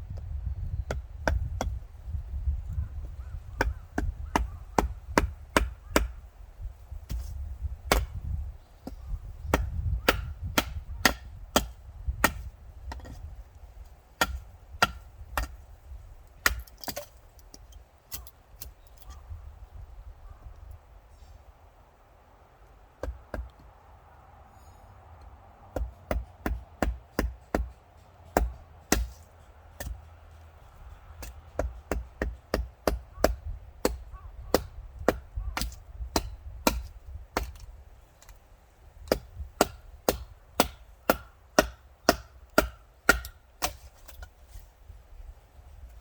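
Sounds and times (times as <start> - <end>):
chopping wood: 0.9 - 1.8, 3.5 - 6.2, 7.0 - 13.3, 14.1 - 15.7, 16.3 - 18.7, 23.0 - 23.7, 25.7 - 30.1, 31.2 - 38.4, 39.0 - 44.3.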